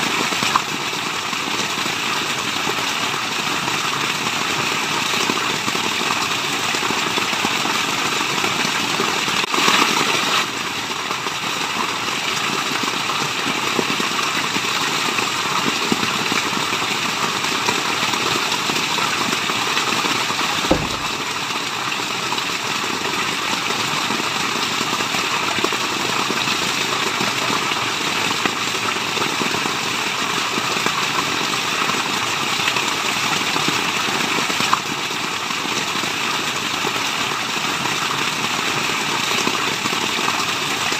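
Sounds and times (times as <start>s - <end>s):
low thump: 20.7s - 21.4s.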